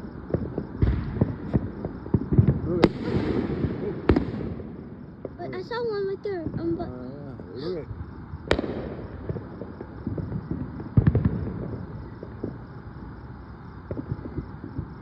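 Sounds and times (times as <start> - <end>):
loud firework bang: 0.0 - 5.4, 8.4 - 12.7
fireworks popping and crackling: 0.0 - 7.0, 8.0 - 15.0.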